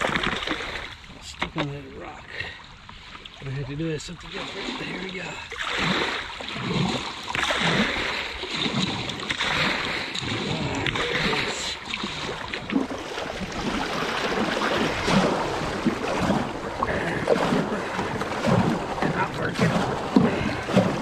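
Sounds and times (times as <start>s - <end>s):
paddle splashes: 0.0s - 21.0s
river water rushing and splashing: 0.0s - 21.0s.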